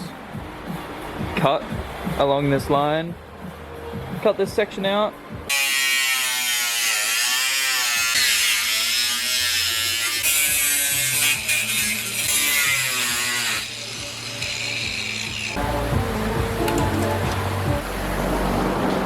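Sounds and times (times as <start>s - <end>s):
power cutting tool cutting metal: 5.5s - 15.6s.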